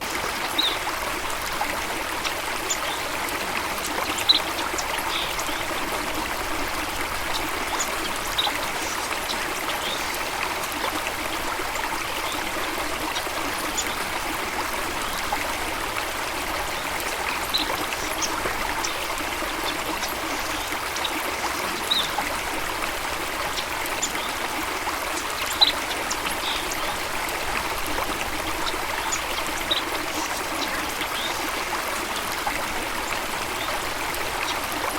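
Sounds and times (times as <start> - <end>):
water flowing and trickling: 0.0 - 34.9.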